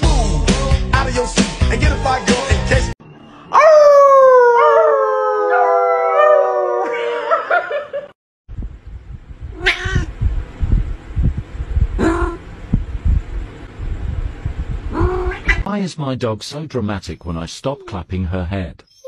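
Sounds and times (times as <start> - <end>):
people howling: 3.4 - 7.6
dog howling: 3.5 - 7.2
cat crying: 9.5 - 10.1, 12.0 - 12.4, 14.9 - 15.7.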